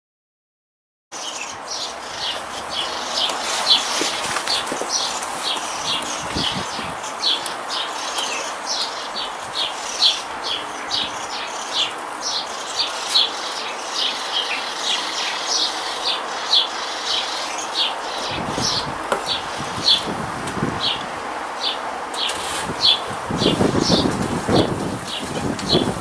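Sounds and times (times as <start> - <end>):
background hiss: 1.2 - 26.0.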